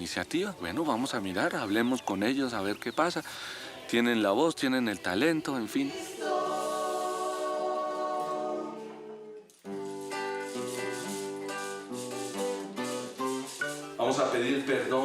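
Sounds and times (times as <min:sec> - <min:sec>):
run of rhythmic notes: 0:09.7 - 0:14.7.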